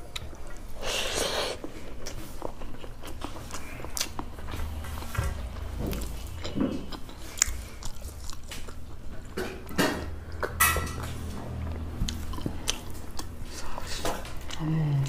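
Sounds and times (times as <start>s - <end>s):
person chewing: 0.0s - 15.0s
person sipping a drink: 0.8s - 1.7s.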